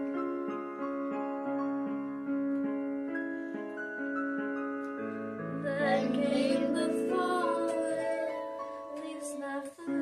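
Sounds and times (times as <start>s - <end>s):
gentle piano melody: 0.0s - 10.0s.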